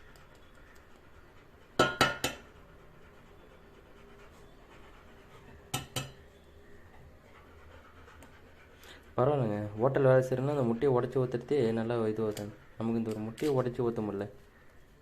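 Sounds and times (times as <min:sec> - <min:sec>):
egg knocking against dish rim: 0:01.8 - 0:02.4.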